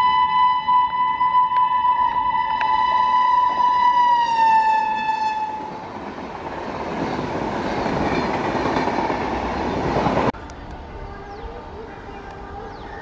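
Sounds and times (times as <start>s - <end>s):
train horn long note: 0.0s - 5.8s
train wheels rushing on track: 3.4s - 10.8s.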